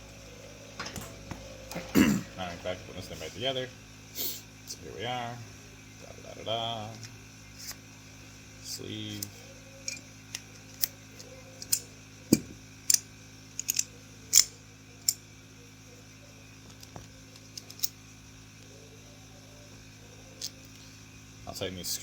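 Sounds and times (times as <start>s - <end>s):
steady low hum: 0.0s - 22.0s
pump parts clicking: 0.8s - 2.0s, 9.1s - 15.2s, 16.7s - 18.0s.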